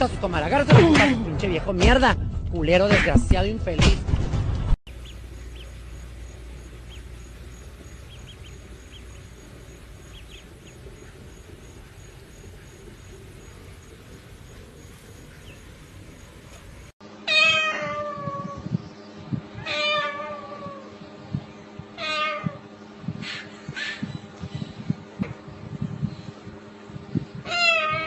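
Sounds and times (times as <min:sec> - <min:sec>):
faint chirps: 0:04.9 - 0:16.6
cat meowing: 0:17.3 - 0:18.6, 0:19.6 - 0:20.8, 0:27.5 - 0:28.0.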